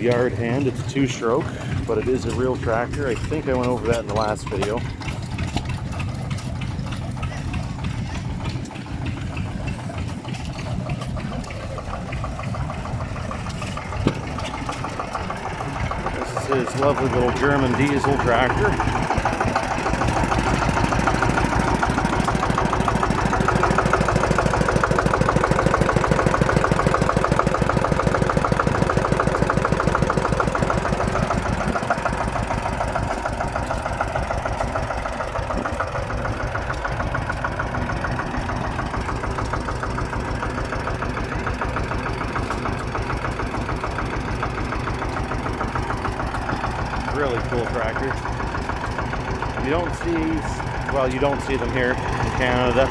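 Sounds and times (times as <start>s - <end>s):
diesel tractor engine idling: 0.0s - 52.9s.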